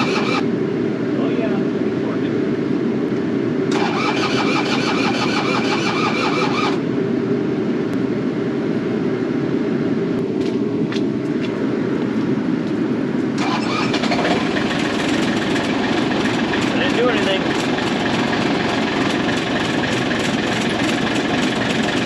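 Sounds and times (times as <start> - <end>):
diesel engine idling: 13.4 - 22.0.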